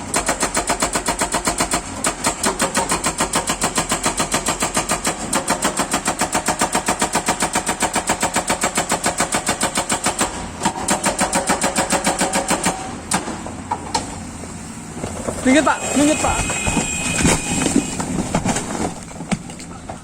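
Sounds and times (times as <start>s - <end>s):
hydraulic rock breaker hammering: 0.0s - 13.4s.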